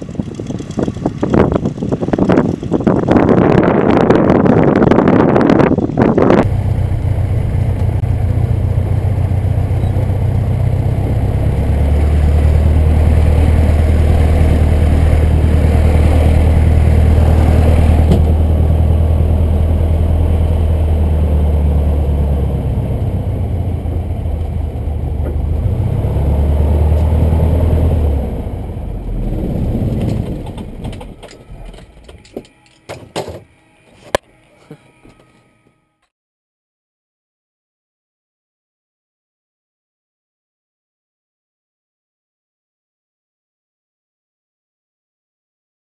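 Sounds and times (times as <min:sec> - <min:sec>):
propeller plane engine running: 0:00.0 - 0:35.7.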